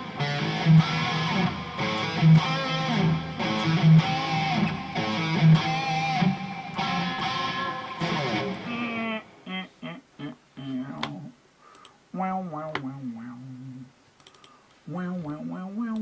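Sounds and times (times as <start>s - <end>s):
electric guitar chords strummed: 0.0s - 8.8s.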